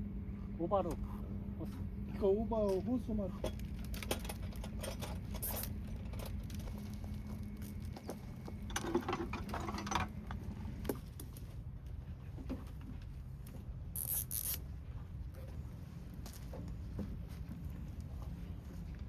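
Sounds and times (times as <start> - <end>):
hum: 0.0 - 11.9.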